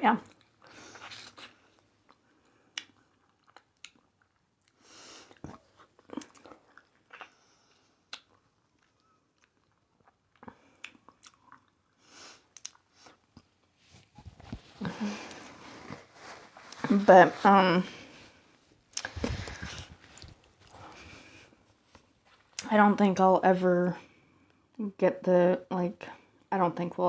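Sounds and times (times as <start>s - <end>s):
chewing crunchy food: 0.2s - 15.4s.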